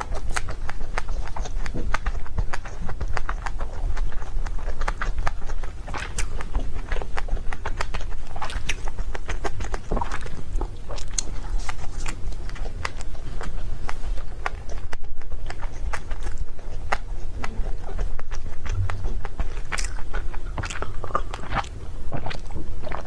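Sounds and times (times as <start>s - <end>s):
person chewing cake: 0.0s - 23.0s
low rumble: 5.5s - 23.0s.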